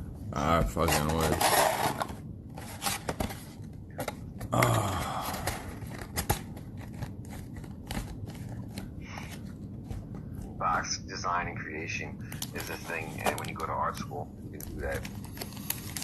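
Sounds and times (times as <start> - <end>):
packaging tearing rustle: 14.6 - 16.0.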